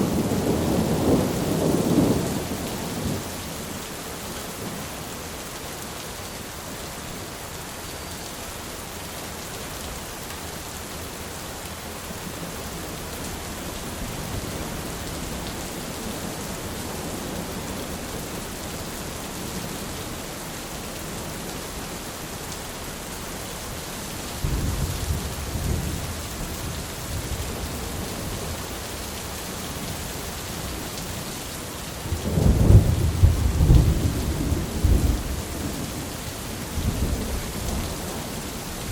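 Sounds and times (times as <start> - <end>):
rain falling: 0.0 - 38.9
rolling thunder: 32.1 - 36.0.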